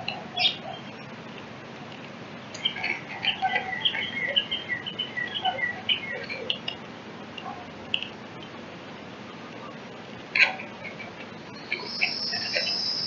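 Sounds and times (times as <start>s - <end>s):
songbird chirping: 0.0s - 1.2s, 2.5s - 6.8s, 10.9s - 13.0s.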